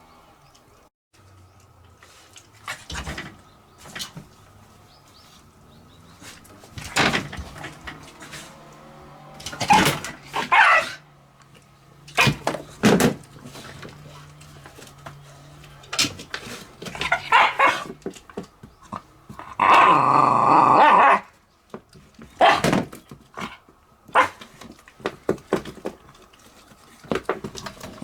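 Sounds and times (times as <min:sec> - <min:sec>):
dog barking: 0:09.6 - 0:11.2, 0:17.0 - 0:17.9, 0:20.8 - 0:21.3, 0:22.4 - 0:22.8, 0:23.4 - 0:24.4.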